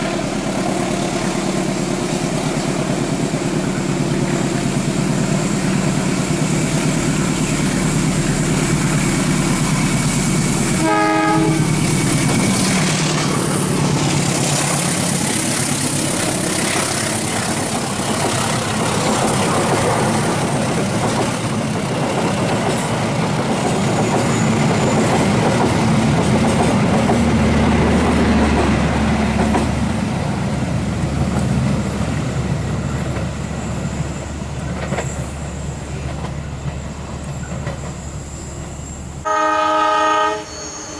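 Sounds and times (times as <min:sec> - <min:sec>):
train carriages rumbling past: 0:00.0 - 0:40.9
locomotive horn blast: 0:10.6 - 0:12.1, 0:39.2 - 0:40.9.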